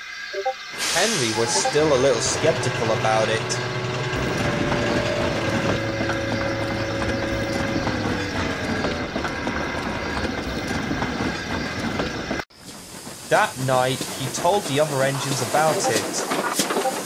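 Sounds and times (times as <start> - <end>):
steady tone: 0.4 - 9.7
train wagons clattering over rails: 1.1 - 17.0.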